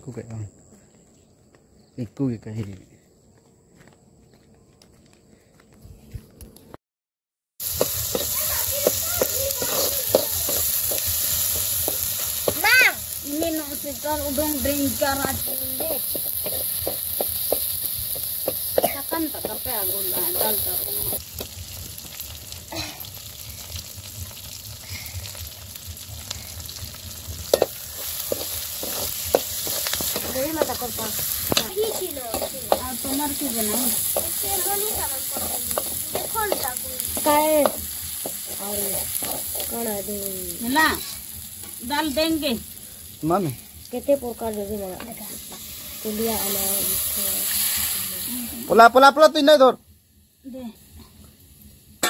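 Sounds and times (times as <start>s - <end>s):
leaves crackling in oil: 7.6s - 51.8s
onions sizzling in hot oil: 7.6s - 52.0s
metal ladle stirring: 27.5s - 33.2s.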